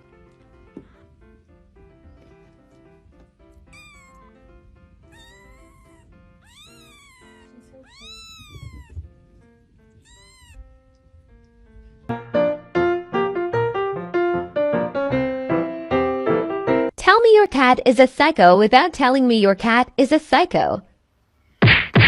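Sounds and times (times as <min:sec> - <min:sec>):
loud piano music: 0:00.0 - 0:07.5, 0:10.6 - 0:17.0
faint background music: 0:00.0 - 0:12.2
cat meowing: 0:03.6 - 0:04.4, 0:05.0 - 0:09.2, 0:09.9 - 0:10.8.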